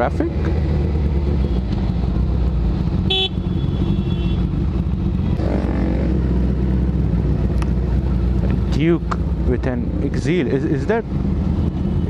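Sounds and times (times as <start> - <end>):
engine revving: 0.0 - 12.0
motorcycle engine idling: 0.0 - 12.0
vehicle horn toot: 3.0 - 4.6.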